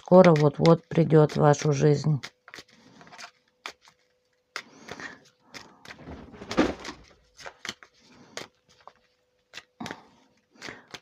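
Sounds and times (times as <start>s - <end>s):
rustling: 5.8s - 8.1s
heavy thump: 6.0s - 7.0s.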